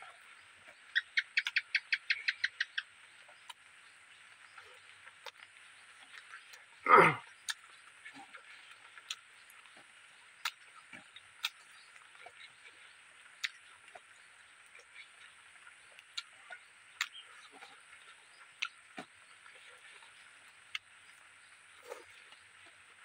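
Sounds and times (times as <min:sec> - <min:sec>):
chewing food: 0:00.1 - 0:23.0
mouth clicks and lip smacks: 0:00.9 - 0:02.8, 0:07.3 - 0:09.8, 0:10.4 - 0:12.8, 0:13.4 - 0:15.3, 0:16.0 - 0:21.0.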